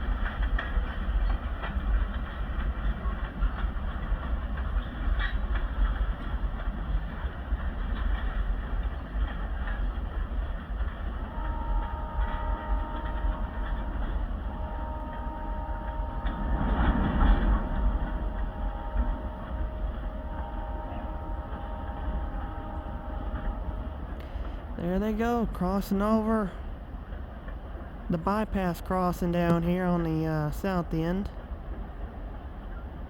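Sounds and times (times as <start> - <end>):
freight train rumbling: 0.0 - 33.0
locomotive horn blasts: 11.1 - 26.5.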